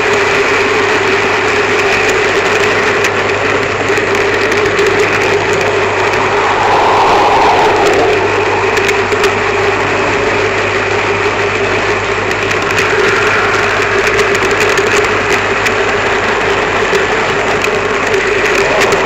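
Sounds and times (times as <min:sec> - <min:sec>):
wheels clicking on track: 0:12.3 - 0:19.0.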